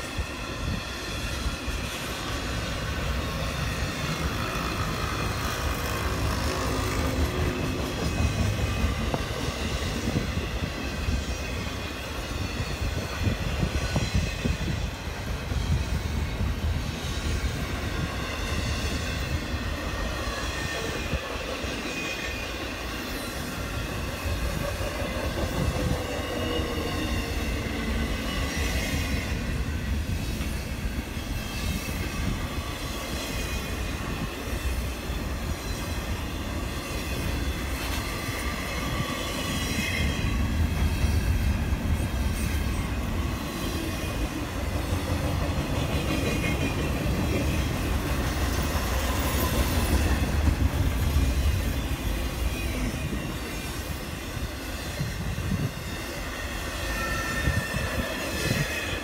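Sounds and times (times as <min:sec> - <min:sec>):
train wheels rumbling on rail: 0:00.0 - 0:59.0
high-pitched wheel squeal: 0:55.6 - 0:59.0.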